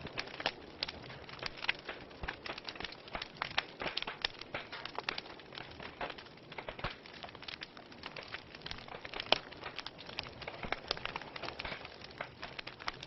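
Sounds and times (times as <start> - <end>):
soft fire hiss: 0.0 - 13.0
wood fire crackling: 0.0 - 13.0.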